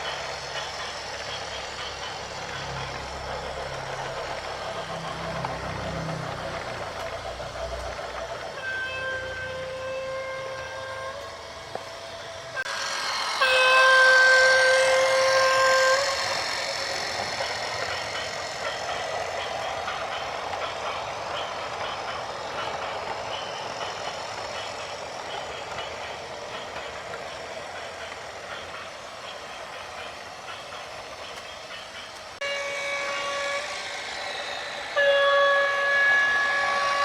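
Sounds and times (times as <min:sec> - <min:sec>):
engine and traffic noise: 0:00.0 - 0:14.8
vehicle horn blast: 0:08.6 - 0:11.2.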